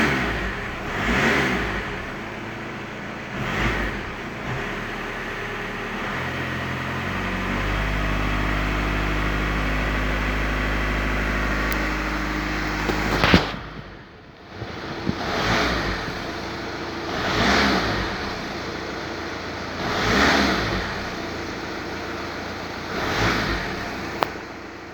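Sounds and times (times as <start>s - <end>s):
car engine running: 0.0s - 24.9s
engine revving: 0.0s - 24.9s
sharp crack: 11.6s - 16.2s.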